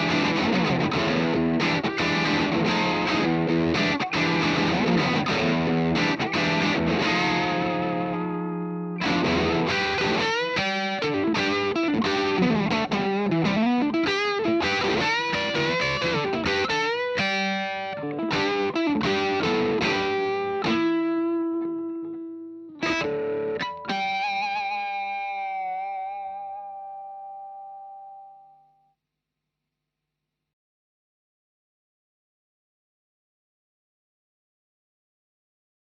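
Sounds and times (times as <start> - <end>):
distorted electric guitar: 0.0 - 28.4.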